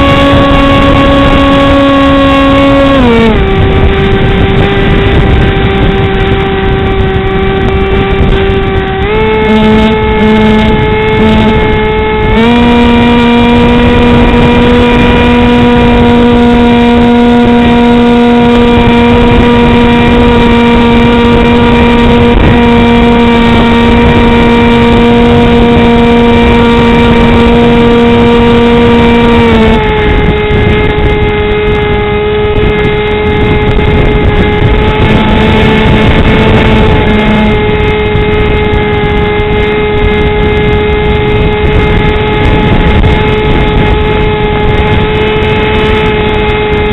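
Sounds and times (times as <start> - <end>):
electric propeller whine: 0.0 - 46.9
wind noise: 0.0 - 46.9.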